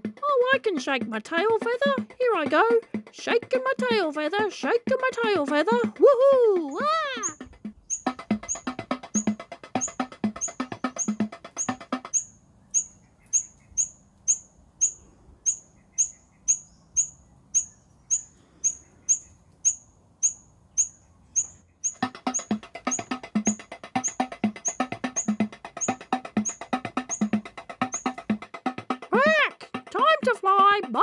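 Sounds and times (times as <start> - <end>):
background music: 0.0 - 12.2, 21.9 - 31.0
bird giving high chirps: 6.7 - 29.0.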